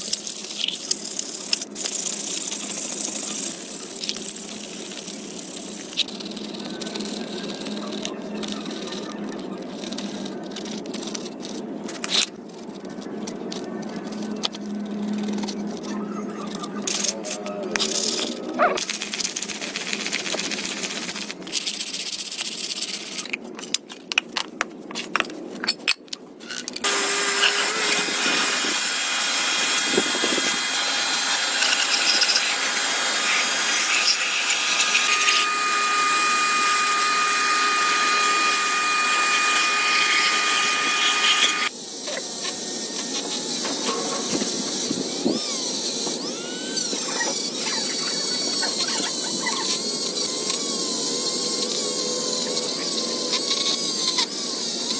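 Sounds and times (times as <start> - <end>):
power tools whining: 26.8 - 54.9.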